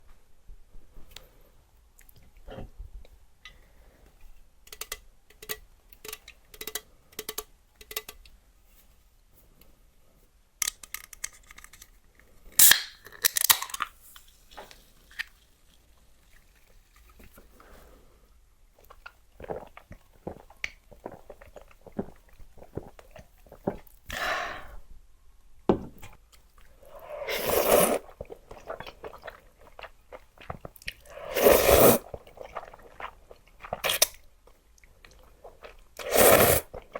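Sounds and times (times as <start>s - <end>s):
chewing and crunching: 18.8s - 24.0s, 28.0s - 36.9s
slurping noodles: 26.8s - 34.1s, 35.3s - 36.9s.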